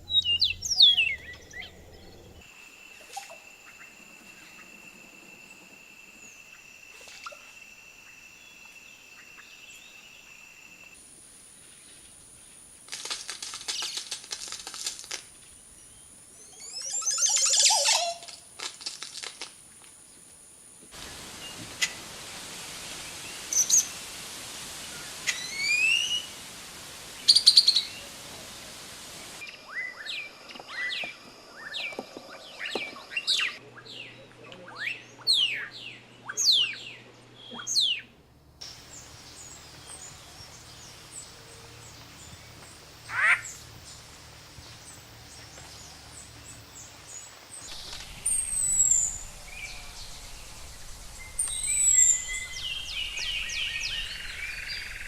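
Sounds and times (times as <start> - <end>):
wild birds singing and calling: 0.0 - 2.5, 29.2 - 38.1, 38.7 - 55.0.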